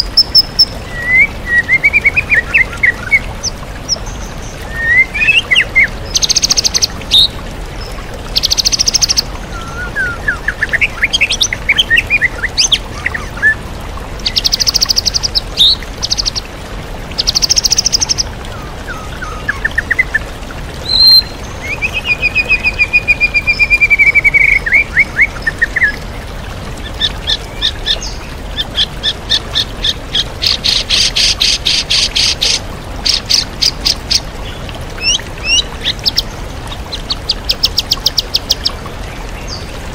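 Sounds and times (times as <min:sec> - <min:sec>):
waterfall rushing: 0:00.0 - 0:39.9
songbird whistling and chattering: 0:09.5 - 0:10.5.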